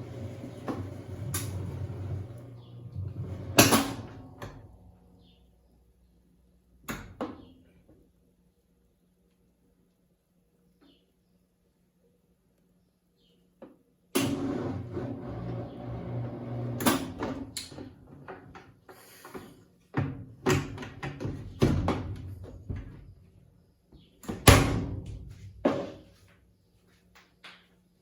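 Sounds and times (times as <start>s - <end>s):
washing machine churning: 0.0s - 4.7s, 14.2s - 18.6s.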